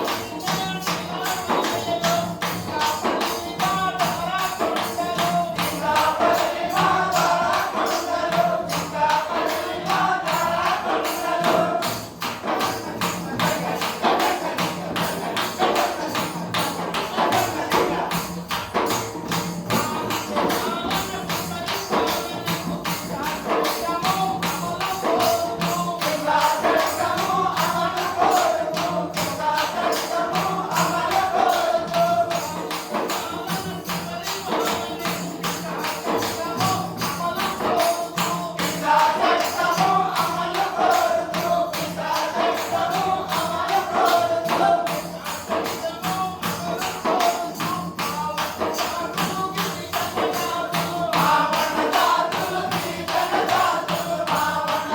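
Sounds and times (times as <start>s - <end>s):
fast hand percussion beat: 0.0s - 54.9s
man singing folk song: 19.8s - 54.9s.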